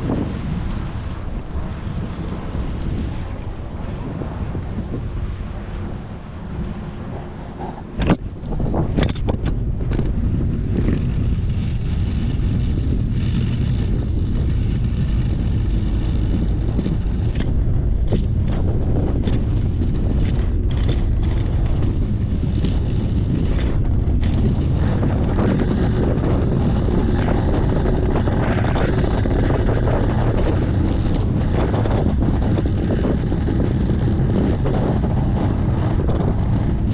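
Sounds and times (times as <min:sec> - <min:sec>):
watercraft engine running: 0:00.0 - 0:36.9
wind on microphone: 0:00.0 - 0:36.9.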